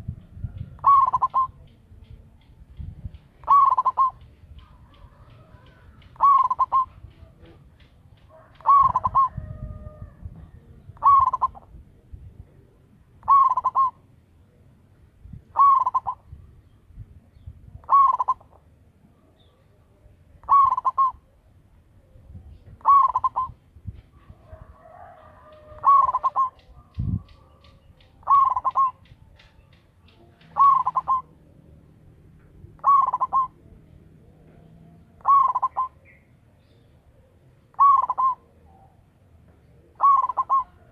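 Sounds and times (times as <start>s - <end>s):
dove cooing: 0.0s - 1.8s, 3.4s - 7.6s, 8.3s - 11.8s, 12.5s - 14.1s, 15.5s - 16.4s, 17.8s - 18.6s, 20.4s - 21.4s, 22.0s - 23.6s, 24.2s - 31.6s, 32.5s - 36.2s, 37.1s - 40.9s.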